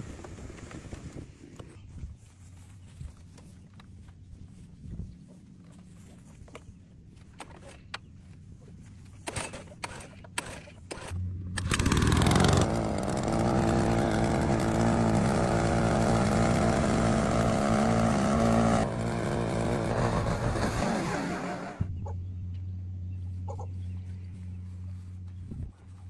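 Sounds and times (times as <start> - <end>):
lawn mower engine running: 10.9 - 21.9.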